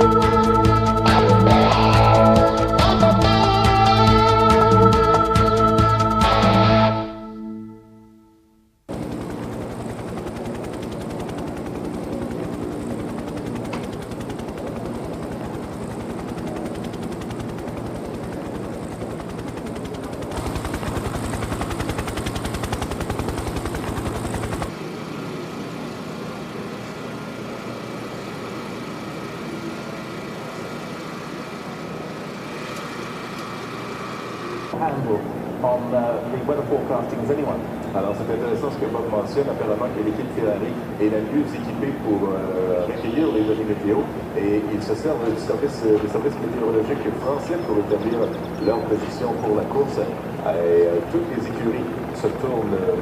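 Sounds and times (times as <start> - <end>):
helicopter rotor chop: 0.0 - 6.8, 8.9 - 53.0
mechanical hum: 20.3 - 38.8.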